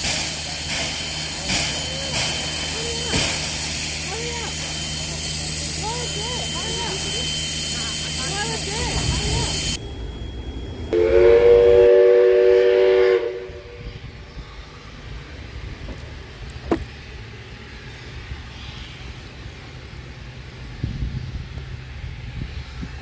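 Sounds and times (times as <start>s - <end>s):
steam locomotive whistle: 0.0s - 9.8s, 10.9s - 14.0s.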